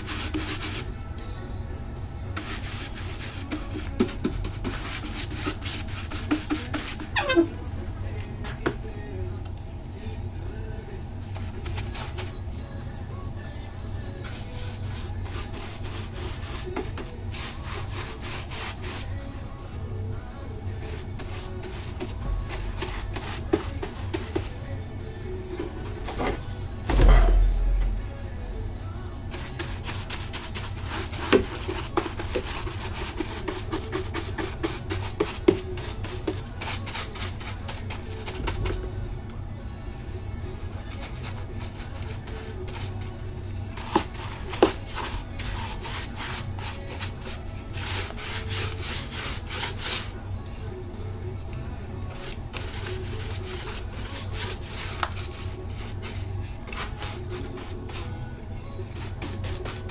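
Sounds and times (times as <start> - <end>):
steady low hum: 0.0 - 59.9
wood being scraped by hand: 43.7 - 50.1.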